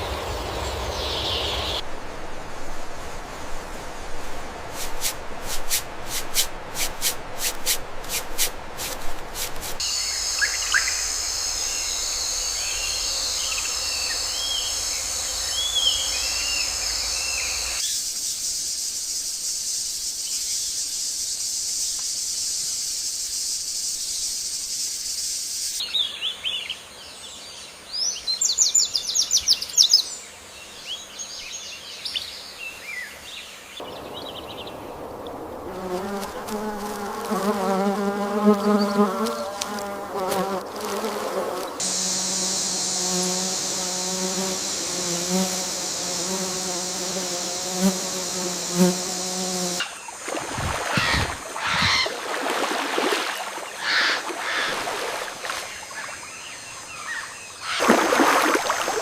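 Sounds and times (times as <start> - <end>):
birds chirping: 0.0 - 1.8, 9.8 - 18.0, 25.8 - 35.4, 41.4 - 52.2, 53.4 - 57.8
high-pitched insect drone: 9.8 - 25.8, 41.8 - 49.8
quick trilling calls: 50.8 - 52.2.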